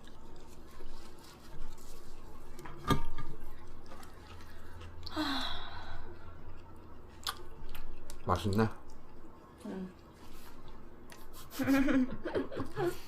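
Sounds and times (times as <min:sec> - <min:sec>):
chewing: 0:00.0 - 0:02.7, 0:03.3 - 0:05.1, 0:06.0 - 0:11.5
food handling noises: 0:00.0 - 0:05.2.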